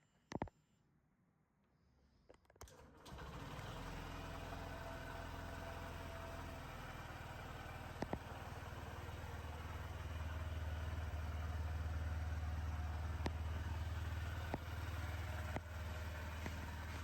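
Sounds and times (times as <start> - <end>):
motorcycle engine starting and idling: 2.6 - 17.0
sharp clicks: 8.0 - 8.2.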